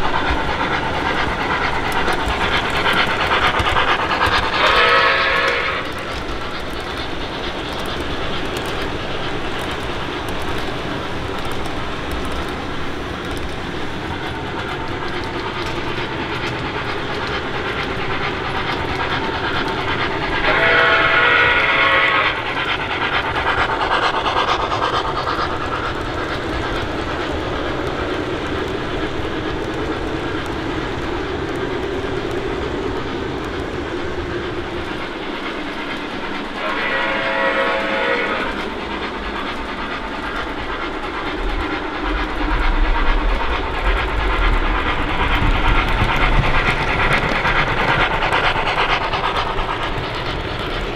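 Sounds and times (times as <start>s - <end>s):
model steam locomotive running: 0.0s - 50.9s
steam whistle blast: 4.6s - 5.9s, 20.5s - 22.4s, 36.6s - 38.6s.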